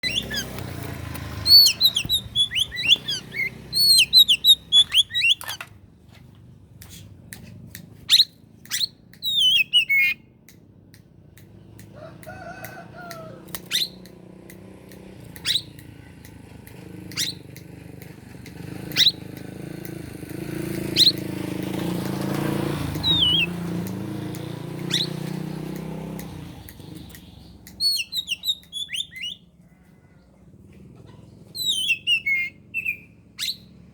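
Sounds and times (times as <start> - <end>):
bird warbling song: 0.0 - 5.6, 8.1 - 10.3, 17.0 - 18.1, 18.7 - 19.4, 20.7 - 21.3, 22.9 - 23.8, 24.7 - 25.7, 26.7 - 29.5, 31.2 - 33.8
sharp downward whistled notes: 23.1 - 23.6.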